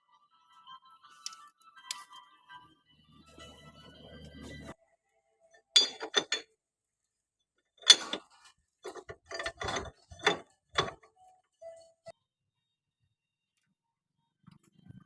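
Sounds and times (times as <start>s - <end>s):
metal tools clanking on engine parts: 5.7s - 6.5s, 7.8s - 11.1s.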